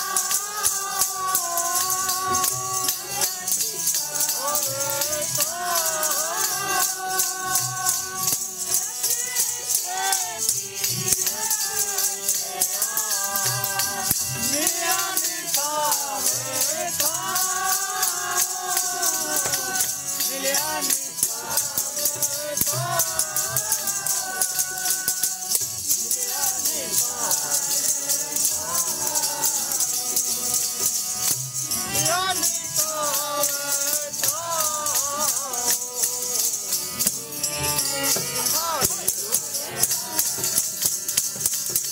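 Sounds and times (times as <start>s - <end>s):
jingling percussion rhythm: 0.0s - 41.9s
voices singing devotional melody: 0.0s - 41.9s.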